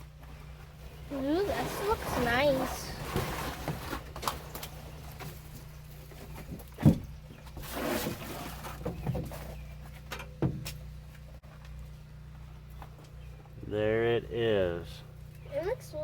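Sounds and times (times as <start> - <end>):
steady low hum: 0.0 - 16.0
dull handling thumps: 6.1 - 10.9.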